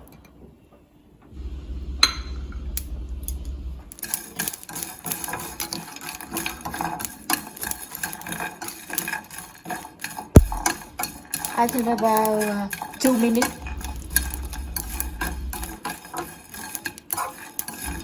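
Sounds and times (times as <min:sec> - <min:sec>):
low hum: 0:01.3 - 0:04.0, 0:10.4 - 0:11.0, 0:13.6 - 0:15.8
utensil scraping in a pan: 0:03.9 - 0:18.0.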